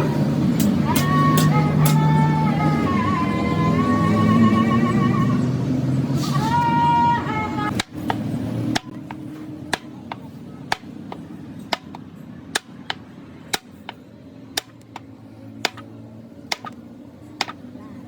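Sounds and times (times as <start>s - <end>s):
hammer blows: 7.7s - 14.0s, 14.6s - 15.0s, 15.6s - 15.9s, 16.5s - 16.8s
light hammer taps: 15.6s - 15.8s.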